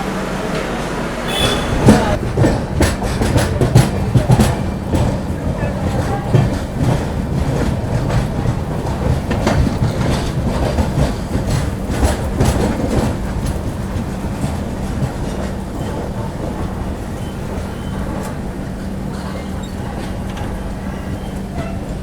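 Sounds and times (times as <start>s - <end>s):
train rumbling on rails: 0.0s - 22.0s
wheel clacks over rail joints: 0.4s - 22.0s.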